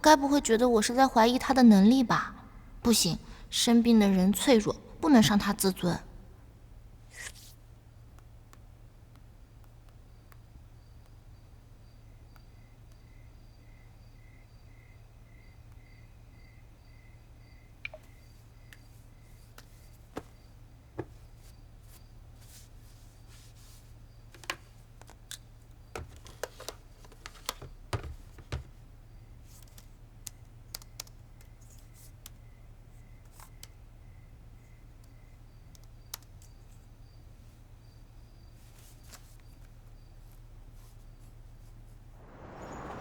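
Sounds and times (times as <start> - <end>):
low hum: 42.1 - 43.0.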